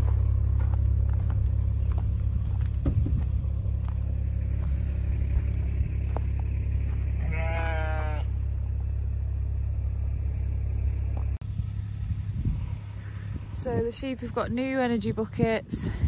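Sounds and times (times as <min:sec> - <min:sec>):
vehicle engine rumbling: 0:00.0 - 0:16.0
short wavering bleat: 0:07.2 - 0:08.4.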